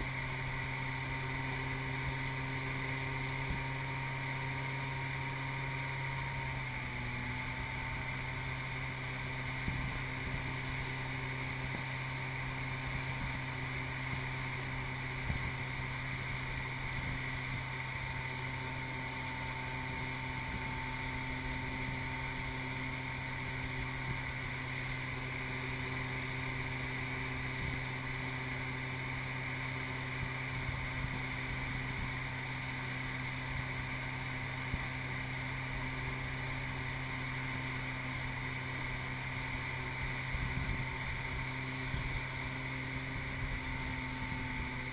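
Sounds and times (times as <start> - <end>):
boat engine droning: 0.0 - 44.9
wind noise on microphone: 9.6 - 11.9, 39.9 - 44.9.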